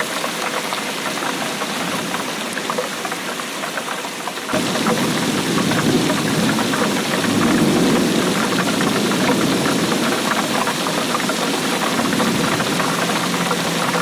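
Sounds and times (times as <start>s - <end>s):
rain drops pattering: 0.0s - 14.0s.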